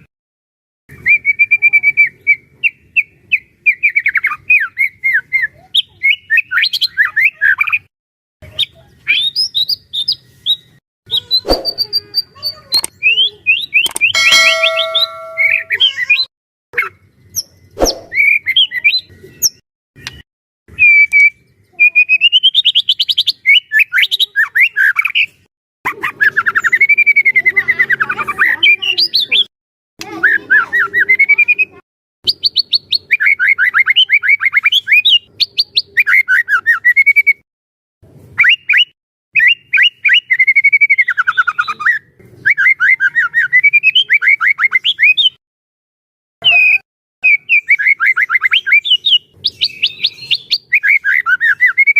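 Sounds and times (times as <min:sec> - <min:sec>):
songbird singing rapid notes: 0:46.4 - 0:51.9.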